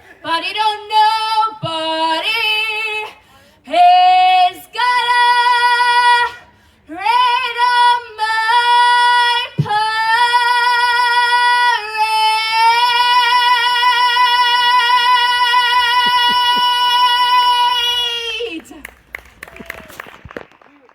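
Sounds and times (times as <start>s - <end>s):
woman singing a cappella: 0.2s - 18.7s.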